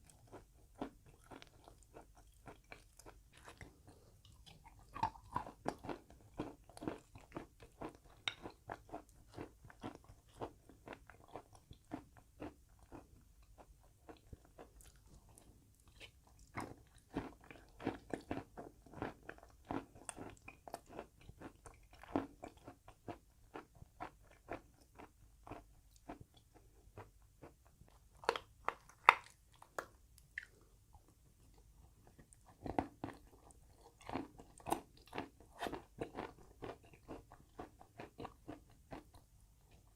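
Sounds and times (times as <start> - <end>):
chalk crunching while chewed: 0.1 - 30.6, 31.5 - 39.9.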